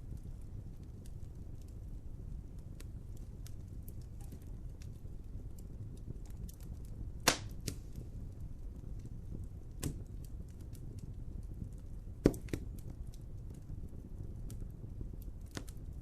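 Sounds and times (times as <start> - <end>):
wood fire crackling: 0.0 - 16.0
sharp loud pops from fire: 7.2 - 8.1, 9.7 - 10.2, 12.2 - 12.9, 15.4 - 15.8.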